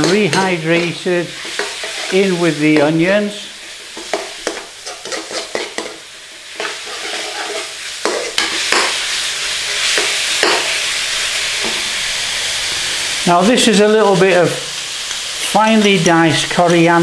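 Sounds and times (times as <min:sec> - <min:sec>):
utensil scraping a pan: 0:00.0 - 0:03.0, 0:03.8 - 0:09.0
chicken and onions sizzling in pan: 0:00.0 - 0:17.0.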